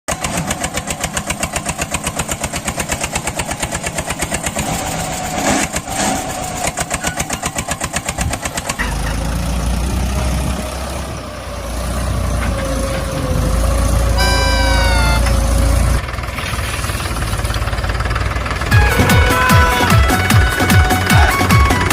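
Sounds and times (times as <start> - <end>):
mini tractor engine running: 0.1 - 21.9
short falling tone: 14.1 - 16.0.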